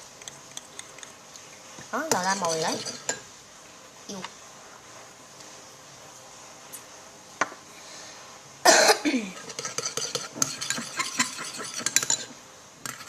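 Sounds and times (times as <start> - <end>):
slime stirred in a bowl: 0.0 - 3.2, 9.4 - 13.0
cough-like vocal sound: 8.7 - 9.3.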